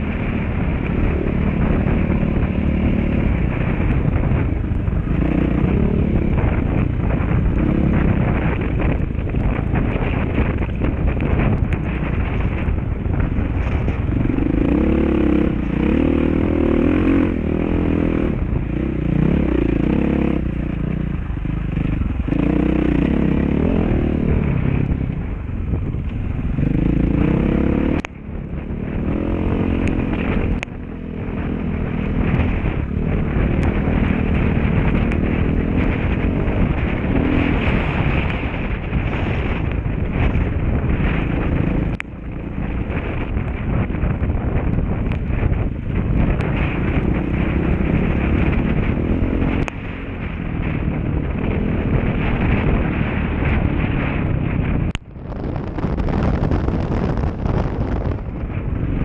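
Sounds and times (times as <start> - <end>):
dirt bike engine revving: 13.6 - 25.0, 26.5 - 42.0, 46.0 - 54.8.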